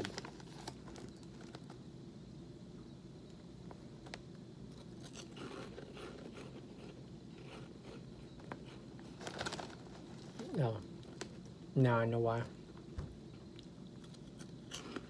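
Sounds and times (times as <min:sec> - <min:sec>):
crunching cheese puff: 0:04.7 - 0:10.4, 0:13.6 - 0:15.0.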